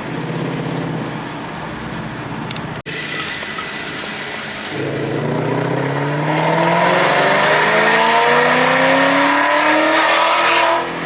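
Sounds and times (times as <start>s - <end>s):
car engine accelerating hard: 4.7s - 11.0s.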